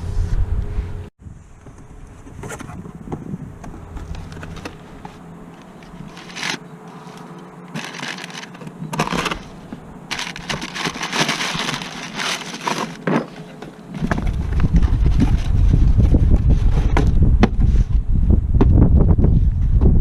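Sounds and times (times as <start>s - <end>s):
scraping and crackling: 3.6s - 17.1s.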